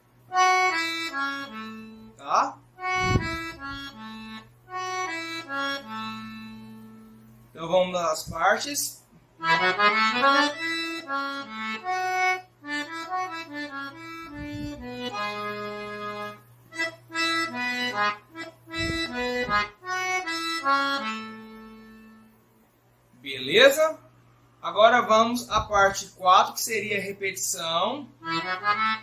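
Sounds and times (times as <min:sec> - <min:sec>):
solo accordion melody: 0:00.0 - 0:07.5, 0:09.4 - 0:22.6, 0:28.2 - 0:29.0.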